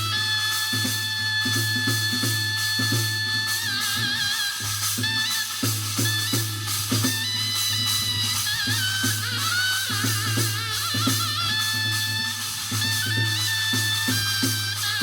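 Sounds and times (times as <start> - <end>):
wavering wind instrument melody: 0.0 - 15.0
drum strokes: 4.0 - 15.0.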